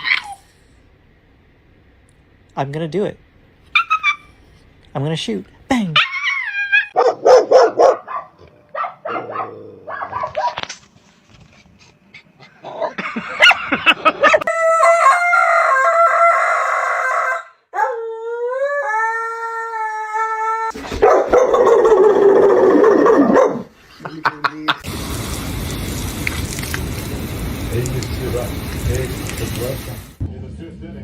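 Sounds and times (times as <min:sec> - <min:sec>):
dog yipping and howling: 0:00.0 - 0:00.5, 0:03.7 - 0:04.4, 0:06.0 - 0:10.6, 0:14.2 - 0:23.7.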